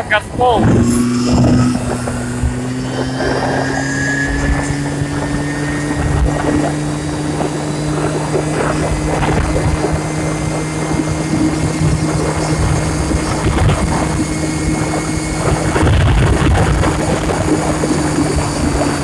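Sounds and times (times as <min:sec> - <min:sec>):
scooter engine at full throttle: 0:00.0 - 0:19.0.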